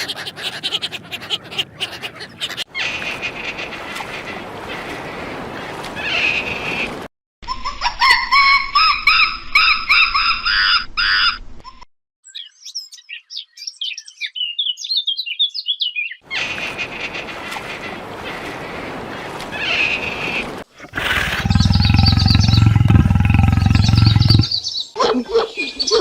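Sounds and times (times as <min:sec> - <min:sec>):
low animal call: 0:20.8 - 0:24.6.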